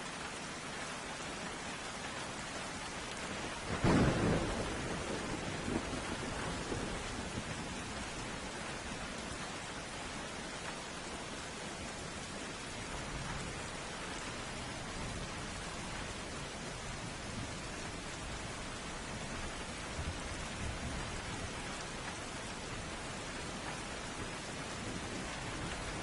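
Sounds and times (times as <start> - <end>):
steady rain falling: 0.0 - 26.0
thunderclap rumbling: 3.6 - 8.2.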